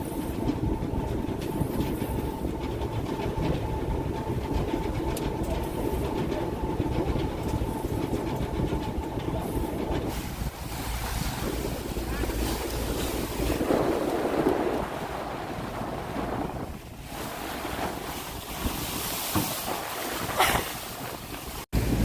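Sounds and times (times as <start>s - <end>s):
thin steady whine: 0.0s - 17.3s
boat engine rumbling: 0.0s - 22.0s.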